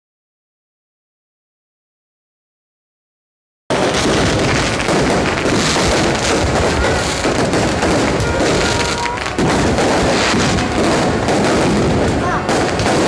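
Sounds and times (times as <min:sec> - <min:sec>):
firework whistles: 0:03.7 - 0:13.0
fireworks crackles and booms: 0:03.7 - 0:13.0.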